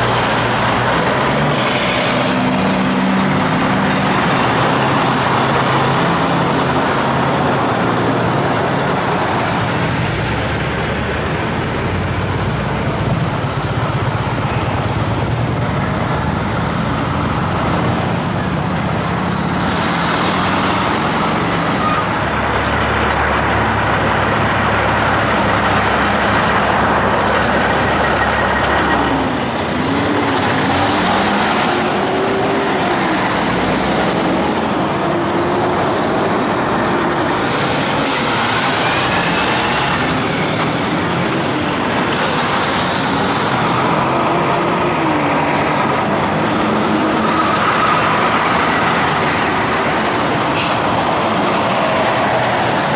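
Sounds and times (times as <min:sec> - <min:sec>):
trucks passing on highway: 0:00.0 - 0:52.9.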